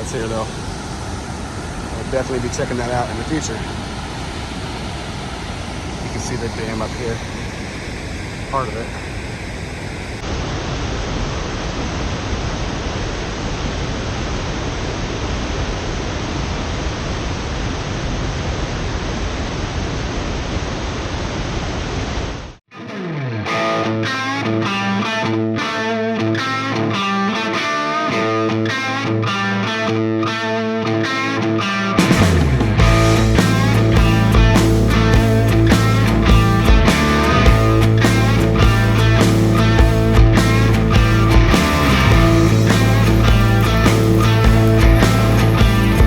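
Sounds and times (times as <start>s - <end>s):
waterfall rushing: 0.0s - 17.7s, 32.0s - 46.0s
guitar rock music: 22.7s - 46.0s.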